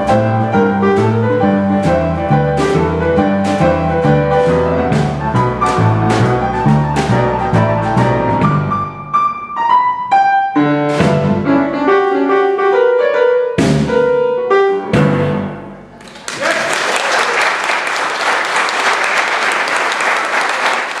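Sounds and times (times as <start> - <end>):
boogie-woogie piano: 0.0 - 16.0
audience applause: 15.9 - 21.0.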